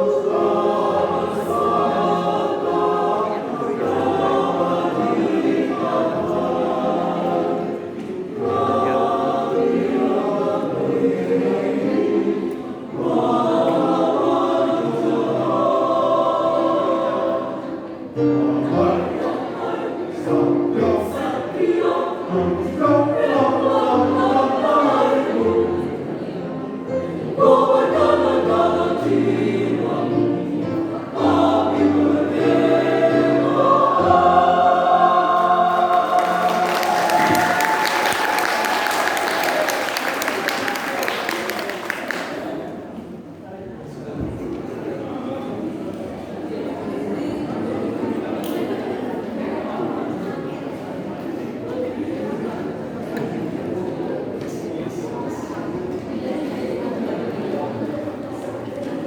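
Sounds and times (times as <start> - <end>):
choir singing: 0.0 - 43.1.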